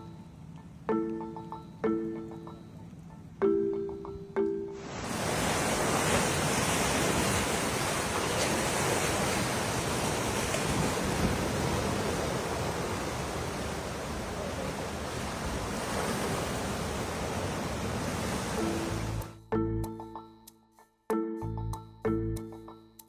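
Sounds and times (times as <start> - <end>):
storm wind rushing: 4.8 - 18.8
rushing water: 4.8 - 19.3.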